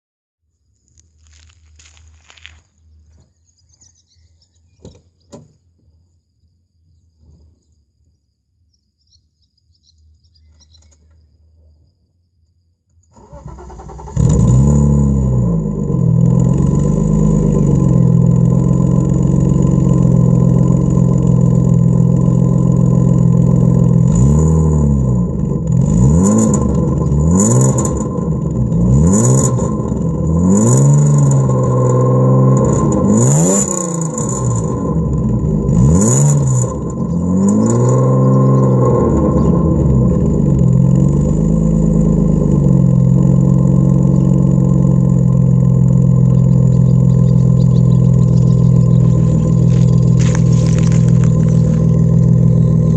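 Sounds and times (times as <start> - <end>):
car engine starting and idling: 12.9 - 52.9
car engine revving: 13.1 - 52.9.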